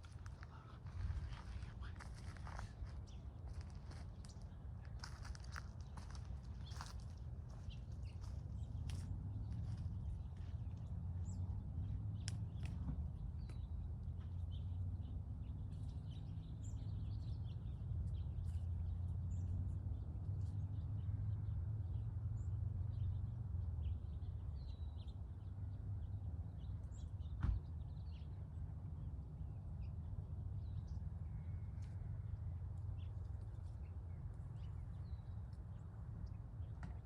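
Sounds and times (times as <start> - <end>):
steady low rumble: 0.0 - 20.2
small birds chirping: 0.0 - 28.5, 32.9 - 37.0.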